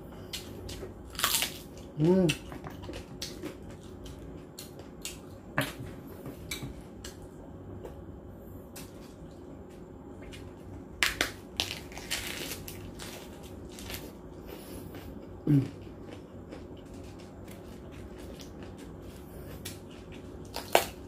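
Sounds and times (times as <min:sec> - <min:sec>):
lettuce crunching: 0:00.3 - 0:05.2, 0:10.3 - 0:21.0.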